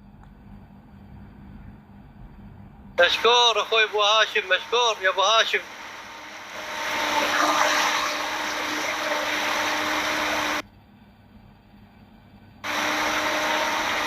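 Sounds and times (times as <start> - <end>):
boat motor humming: 3.0 - 10.6, 12.7 - 14.0
water rushing past boat: 5.6 - 10.6.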